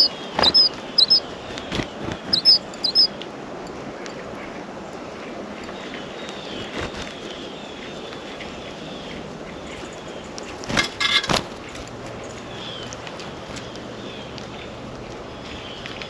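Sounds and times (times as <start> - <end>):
faint thin bird chirps: 0.0 - 1.3, 2.2 - 3.1
outdoor background hum: 0.0 - 16.0.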